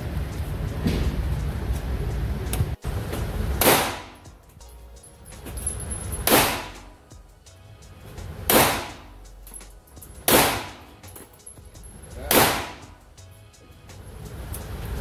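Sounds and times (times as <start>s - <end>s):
pistol shots echoing indoors: 3.6s - 4.3s, 6.2s - 6.8s, 8.5s - 9.1s, 10.2s - 10.9s, 12.3s - 13.0s.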